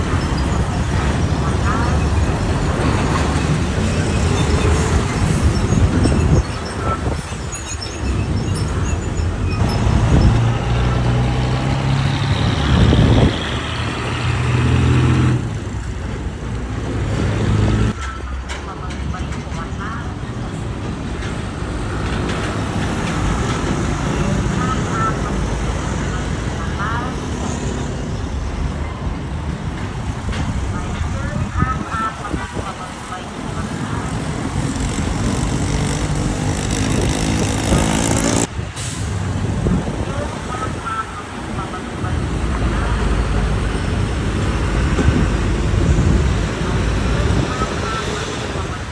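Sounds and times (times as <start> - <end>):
diesel truck engine droning: 0.0 - 18.0, 30.0 - 39.2
road noise: 0.0 - 48.9
heavy truck engine running: 29.4 - 40.6.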